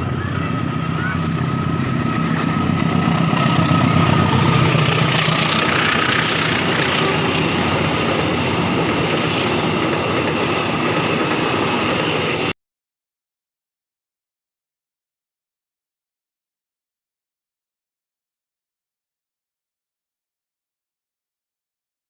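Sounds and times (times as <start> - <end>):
diesel train engine drone: 0.0 - 12.5
wheels rumbling on rails: 0.0 - 12.5.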